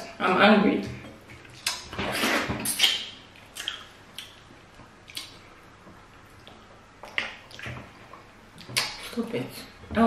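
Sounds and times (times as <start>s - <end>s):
wet lip smacking while chewing: 1.4s - 4.4s, 5.0s - 5.4s.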